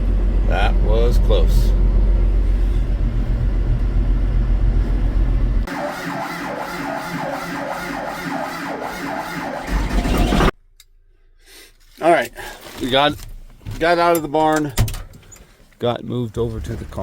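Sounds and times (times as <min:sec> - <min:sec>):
engine rumbling: 0:00.0 - 0:10.6.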